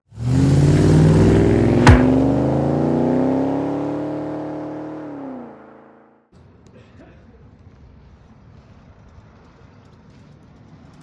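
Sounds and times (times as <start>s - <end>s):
car engine accelerating: 0.1s - 6.1s
sharp crack: 1.4s - 2.6s.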